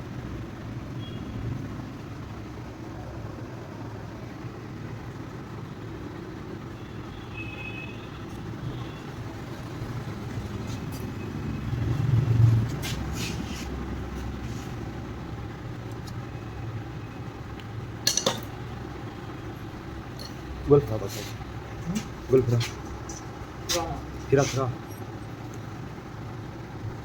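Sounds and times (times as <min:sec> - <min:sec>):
vehicle engine rumble: 0:00.0 - 0:27.0
metallic knocks: 0:18.0 - 0:18.6.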